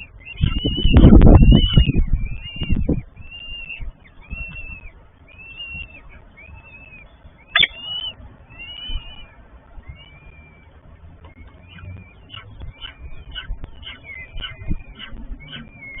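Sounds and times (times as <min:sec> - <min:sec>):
wind on microphone: 0:00.0 - 0:06.3, 0:12.4 - 0:16.0
falcon chicks cheeping: 0:00.0 - 0:16.0.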